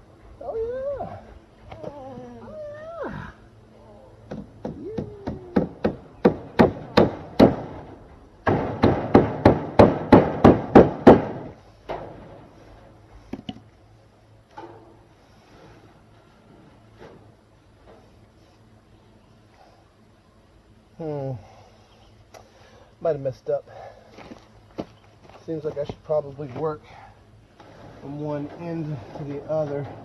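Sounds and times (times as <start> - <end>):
hammer driving tacks into wood: 4.3 - 7.7, 8.4 - 11.4.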